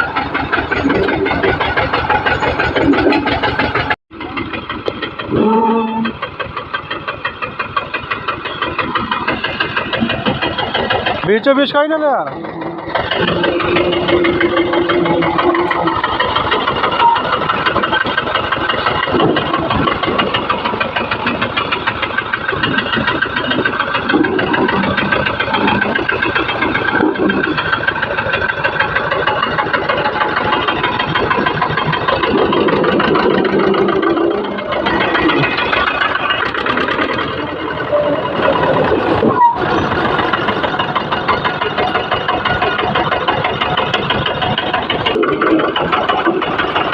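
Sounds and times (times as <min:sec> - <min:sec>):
tractor engine idling: 0:00.0 - 0:46.9.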